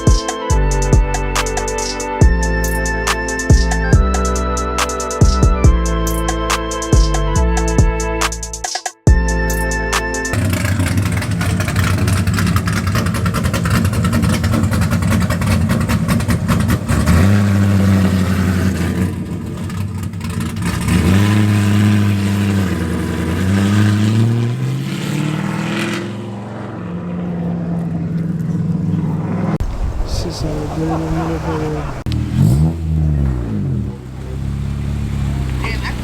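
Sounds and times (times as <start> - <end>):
car engine with loud exhaust: 9.1 - 36.0.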